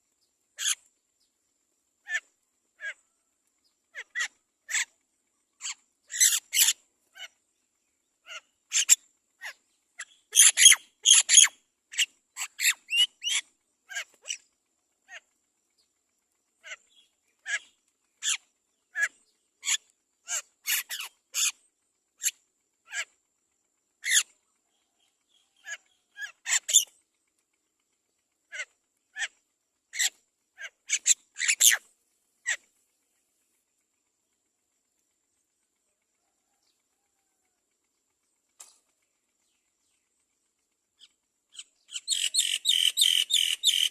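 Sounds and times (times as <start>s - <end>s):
mynas chirping and squawking: 0.6s - 0.9s, 2.0s - 3.0s, 3.9s - 5.0s, 5.6s - 7.4s, 8.2s - 14.5s, 16.6s - 21.5s, 24.0s - 24.3s, 25.6s - 26.9s, 28.5s - 31.8s, 41.5s - 43.9s.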